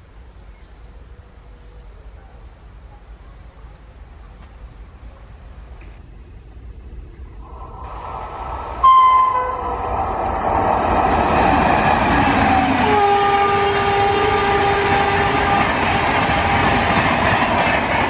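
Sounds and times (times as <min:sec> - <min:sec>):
electric train passing: 0:03.8 - 0:18.0
train horn blast: 0:08.8 - 0:10.2, 0:12.6 - 0:16.6.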